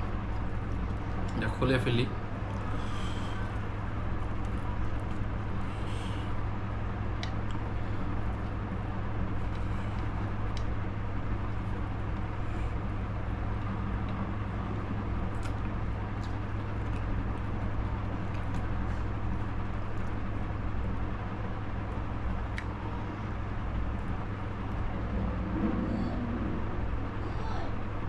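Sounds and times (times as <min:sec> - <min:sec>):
low background hum: 0:00.0 - 0:28.0.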